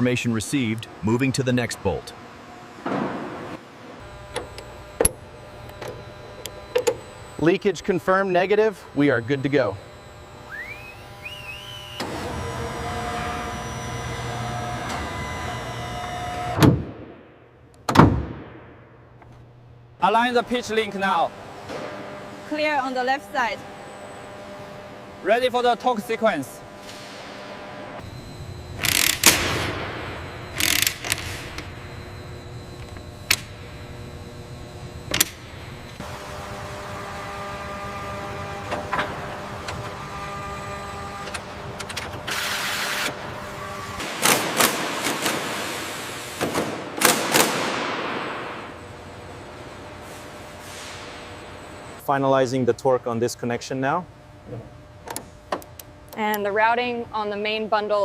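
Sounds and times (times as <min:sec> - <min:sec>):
machine whine: 0:00.0 - 0:52.7
mechanical whirring hum: 0:00.0 - 0:58.0
loud machine clunk: 0:28.8 - 0:31.8.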